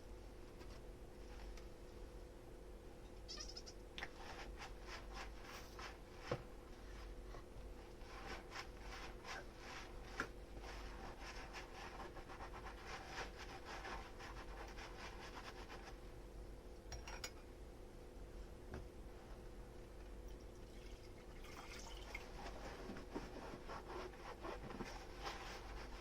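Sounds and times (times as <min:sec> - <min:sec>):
sponge scrubbing dishes: 0:08.0 - 0:16.0, 0:21.9 - 0:26.0.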